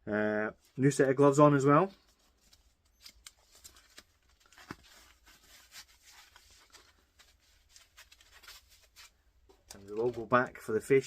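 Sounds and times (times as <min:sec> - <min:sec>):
handling rustles and clicks: 0:02.0 - 0:10.6.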